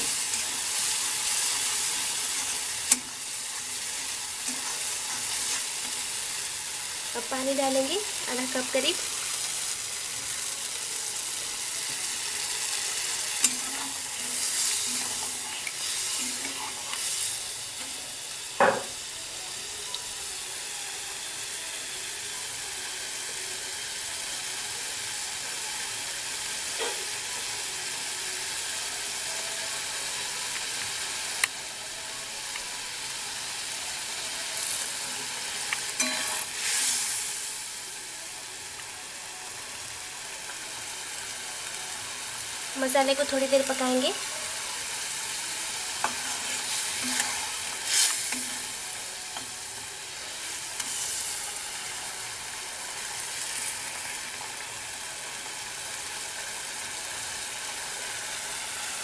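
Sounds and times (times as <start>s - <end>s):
spatula stirring and scraping: 0.0s - 6.6s, 12.6s - 17.4s, 45.9s - 49.5s
spices sizzling in a pan: 0.0s - 59.0s.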